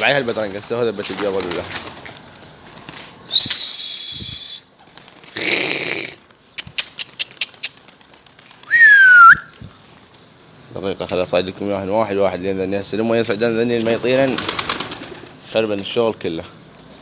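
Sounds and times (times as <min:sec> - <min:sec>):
person whistling loudly: 0:03.3 - 0:04.7, 0:08.7 - 0:09.5.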